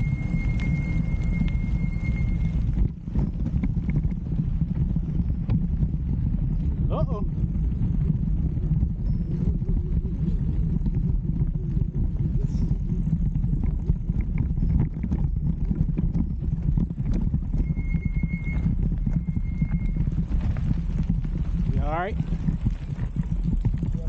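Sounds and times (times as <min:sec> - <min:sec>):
bike rolling rumble: 0:00.0 - 0:24.0.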